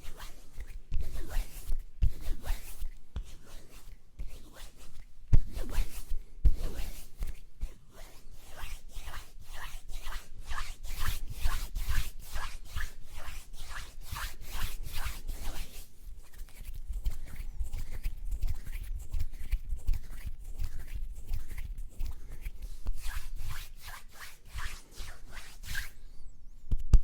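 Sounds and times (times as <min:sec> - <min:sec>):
hand rubbing: 0:00.0 - 0:26.4.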